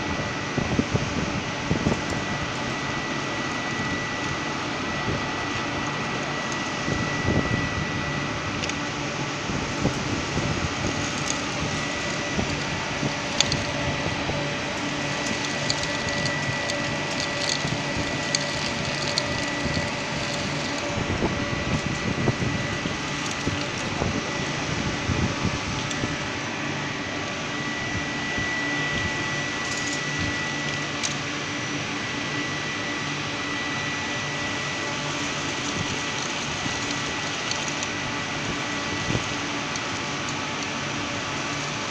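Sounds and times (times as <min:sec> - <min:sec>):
industrial vacuum cleaner running: 0:00.0 - 0:41.9
short clicks and crackles: 0:10.9 - 0:21.0.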